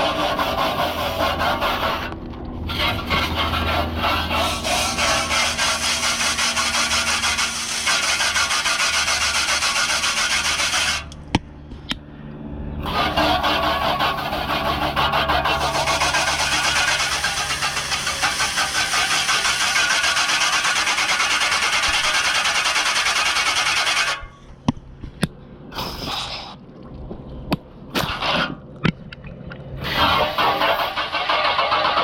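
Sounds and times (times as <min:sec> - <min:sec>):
hose water jet spraying: 0:00.0 - 0:11.2, 0:12.8 - 0:24.3, 0:25.8 - 0:26.6, 0:29.8 - 0:32.0
water spurts and clicks: 0:00.1 - 0:11.2, 0:12.8 - 0:24.2, 0:25.1 - 0:32.0.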